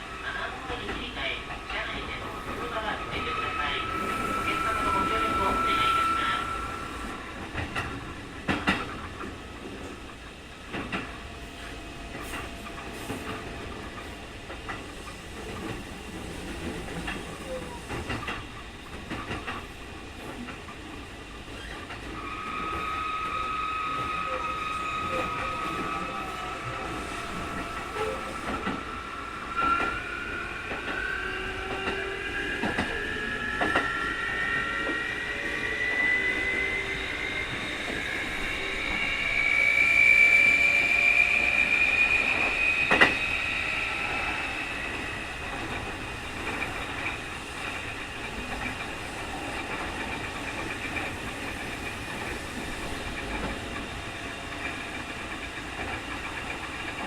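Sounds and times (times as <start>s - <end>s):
rail-joint clicks: 7.4s - 22.2s, 25.0s - 30.0s, 31.6s - 34.0s, 41.8s - 43.4s, 44.1s - 57.0s.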